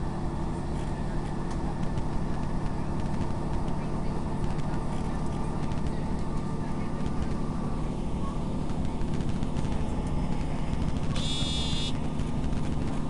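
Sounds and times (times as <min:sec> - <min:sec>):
train rumble inside carriage: 0:00.0 - 0:11.2, 0:11.9 - 0:13.0
short high beep: 0:11.2 - 0:12.0.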